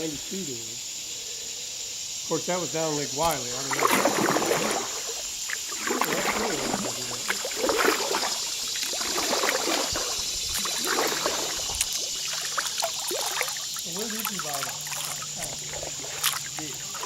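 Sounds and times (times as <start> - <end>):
indistinct low talk: 0.0 - 0.8, 6.2 - 7.5, 13.8 - 17.0
creek water running: 0.0 - 0.9, 2.2 - 17.0.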